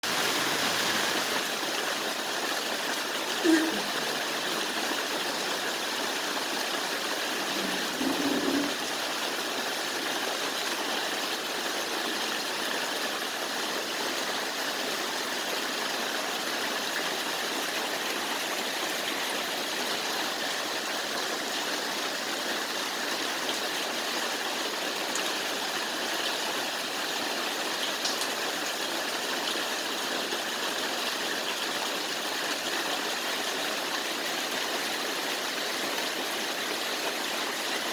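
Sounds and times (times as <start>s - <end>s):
heavy rain falling: 0.0s - 37.9s.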